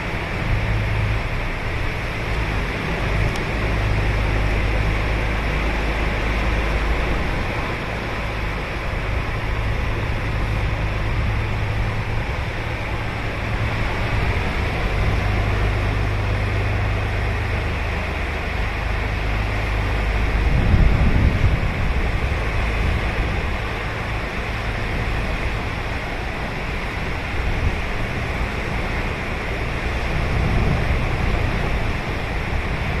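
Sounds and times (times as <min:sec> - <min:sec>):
low rumble: 0:00.0 - 0:33.0
ocean waves breaking on beach: 0:00.0 - 0:33.0.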